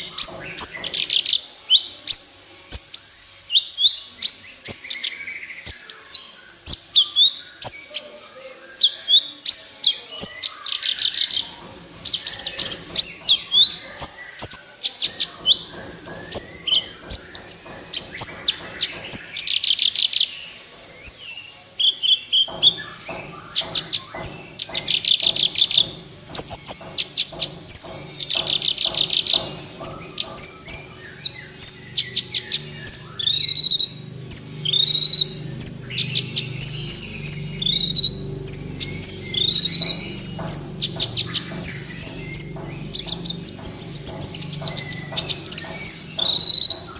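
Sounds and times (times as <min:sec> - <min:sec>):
bird chirping and trilling: 0:00.0 - 0:46.9.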